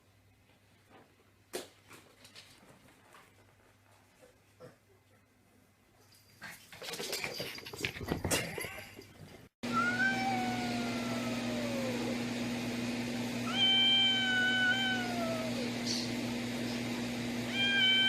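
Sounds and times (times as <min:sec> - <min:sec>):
cat meowing: 0:09.7 - 0:12.1, 0:13.4 - 0:15.7, 0:17.5 - 0:18.0.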